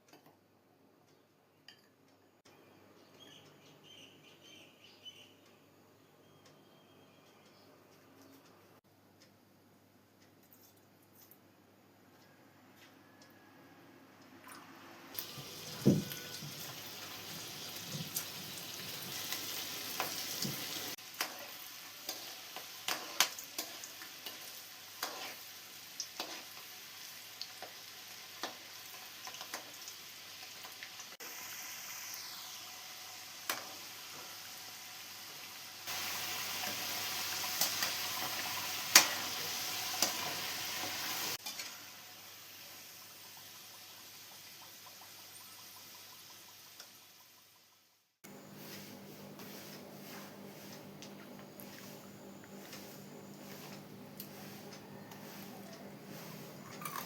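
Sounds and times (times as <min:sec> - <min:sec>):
fritters frying in hot oil: 0:14.4 - 0:48.0, 0:48.6 - 0:57.0.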